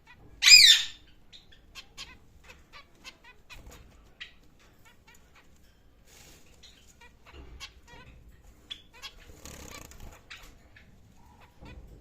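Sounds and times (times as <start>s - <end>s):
bird squawk: 0.0s - 5.4s.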